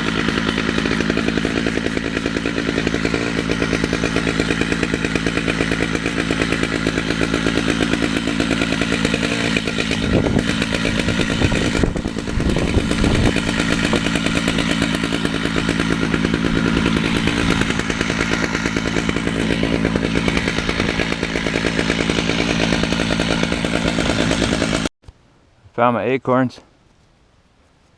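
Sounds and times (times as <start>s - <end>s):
chainsaw cutting a log: 0.0s - 24.9s.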